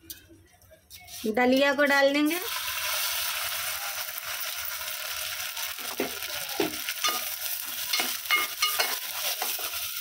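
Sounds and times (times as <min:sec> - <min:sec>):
wheat sizzling in hot fat: 0:02.3 - 0:10.0.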